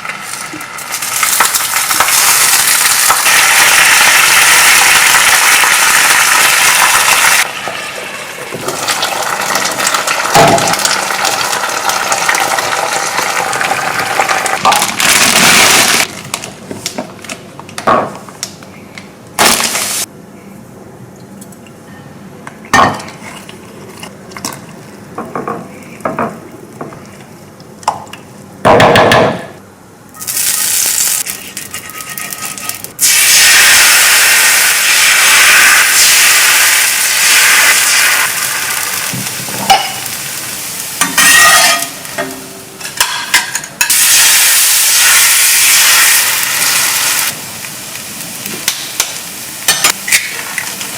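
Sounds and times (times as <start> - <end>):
food sizzling in a pan: 0.0 - 16.1, 19.4 - 20.1, 30.2 - 50.9
pans and utensils clinking: 31.6 - 32.9, 39.1 - 40.2, 41.0 - 44.0.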